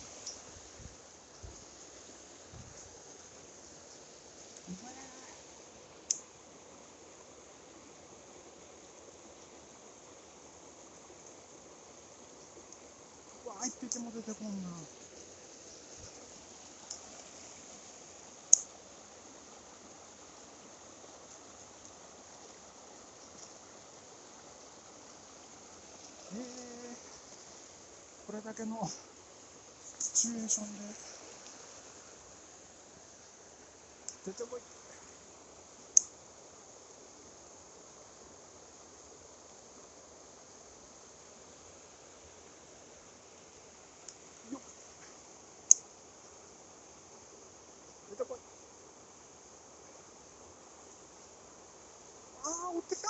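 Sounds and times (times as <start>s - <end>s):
faint high-pitched hiss: 0.0s - 53.0s
stream water rushing: 0.0s - 53.0s.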